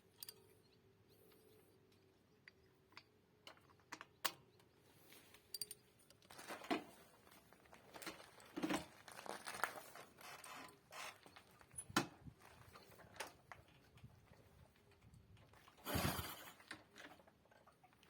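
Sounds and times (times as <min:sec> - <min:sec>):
metallic clicks of small tools: 0:00.1 - 0:00.5, 0:05.3 - 0:06.2.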